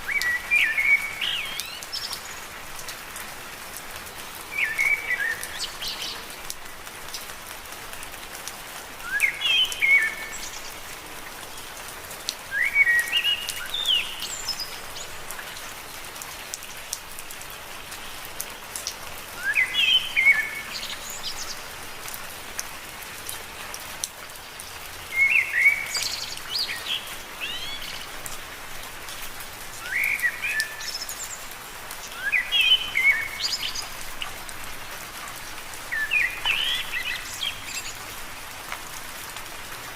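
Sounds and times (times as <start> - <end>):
songbird chirping: 0.0 - 2.5, 4.5 - 6.4, 9.0 - 10.8, 12.5 - 15.4, 19.4 - 21.8, 24.5 - 28.2, 29.8 - 34.2, 35.9 - 38.1
steady rain: 0.0 - 39.9.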